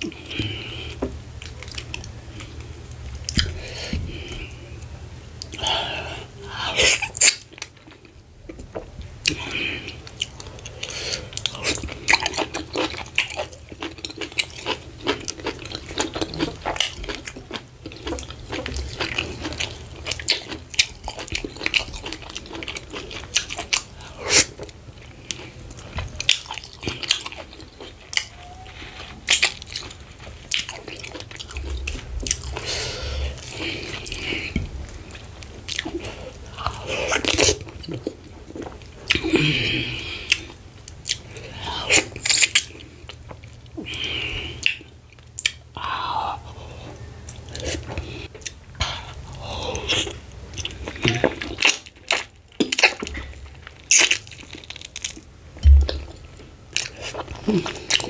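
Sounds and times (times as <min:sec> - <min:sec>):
person chewing with wet smacking: 0:00.0 - 0:05.8, 0:06.8 - 0:58.0.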